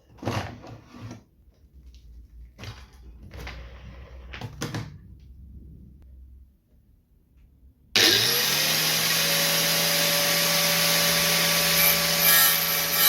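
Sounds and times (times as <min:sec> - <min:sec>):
objects scraping and clattering: 0:00.0 - 0:05.0.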